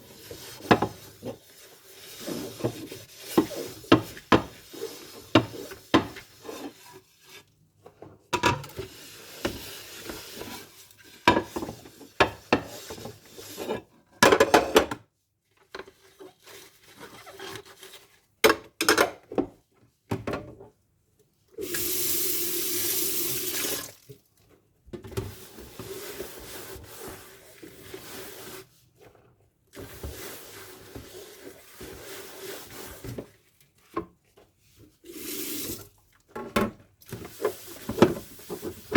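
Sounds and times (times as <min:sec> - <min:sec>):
tap water running: 0:08.7 - 0:13.5, 0:21.6 - 0:24.2, 0:29.7 - 0:33.3, 0:35.0 - 0:36.1, 0:37.0 - 0:38.9.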